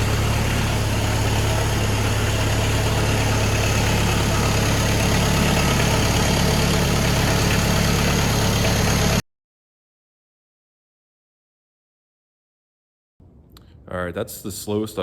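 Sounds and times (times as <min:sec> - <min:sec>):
tractor diesel engine idling: 0:00.0 - 0:09.2.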